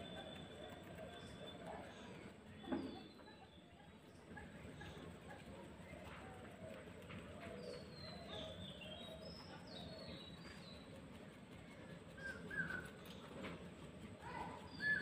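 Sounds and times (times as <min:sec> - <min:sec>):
faint birds calling: 0:00.0 - 0:15.0
low steady background noise: 0:00.0 - 0:15.0
high whistled bird chirps: 0:12.2 - 0:13.1.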